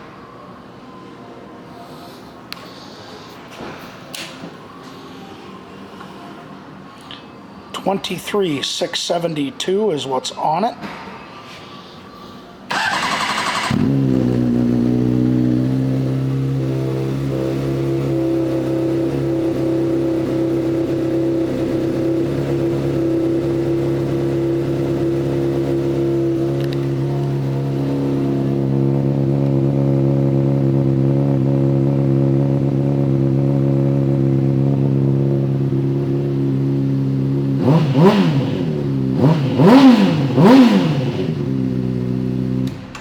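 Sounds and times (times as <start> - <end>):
electric starter cranking engine: 12.7 - 14.2
motorcycle engine idling: 12.7 - 42.8.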